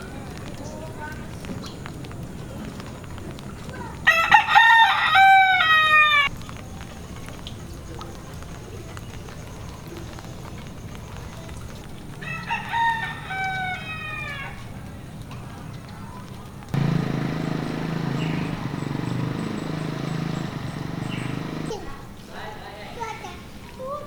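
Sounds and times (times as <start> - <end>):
rooster crowing: 4.1 - 6.3, 12.2 - 14.6.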